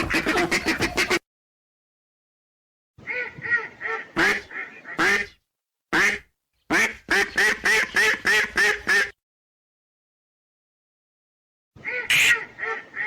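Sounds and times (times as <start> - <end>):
ducks quacking: 0.0 - 1.2, 3.0 - 5.4, 6.0 - 9.2, 11.8 - 13.0.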